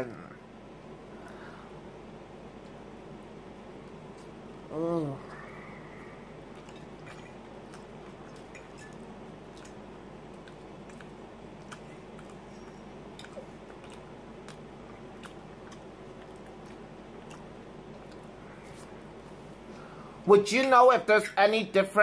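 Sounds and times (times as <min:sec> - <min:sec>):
low background hum: 0:00.0 - 0:22.0
person chewing bacon: 0:06.2 - 0:19.7
wet mouth clicks: 0:10.4 - 0:18.4.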